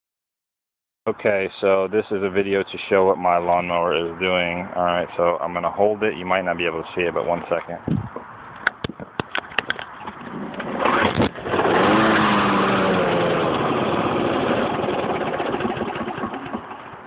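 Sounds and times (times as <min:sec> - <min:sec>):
lawnmower engine pull-started: 0:10.0 - 0:17.0.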